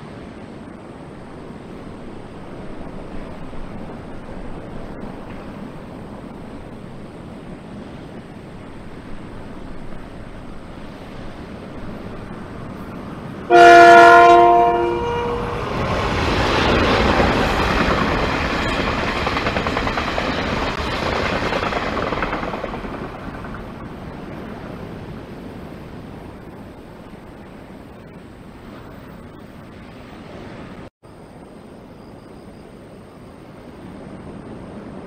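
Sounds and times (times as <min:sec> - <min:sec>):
train rolling on rails: 0:00.0 - 0:35.0
train horn chord: 0:13.5 - 0:15.8.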